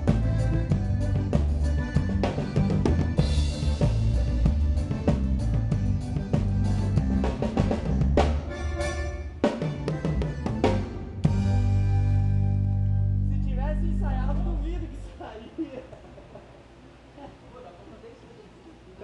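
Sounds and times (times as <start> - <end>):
bass line: 0.0 - 15.2
drum kit playing: 0.0 - 15.2.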